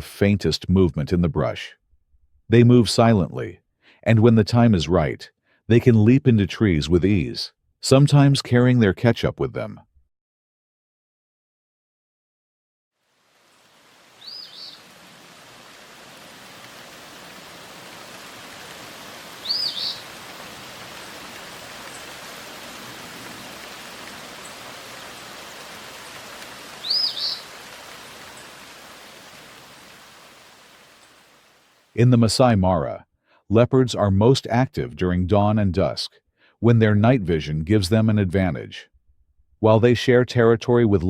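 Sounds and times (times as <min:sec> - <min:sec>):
outdoor ambient hiss: 0:13.0 - 0:32.5
bird double chirp: 0:14.2 - 0:14.8, 0:19.4 - 0:20.0, 0:26.8 - 0:27.5.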